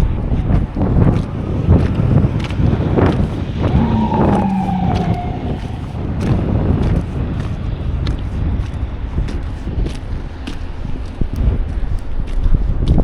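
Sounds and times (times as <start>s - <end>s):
wind buffeting microphone: 0.0s - 13.0s
emergency vehicle siren wail: 3.6s - 6.8s.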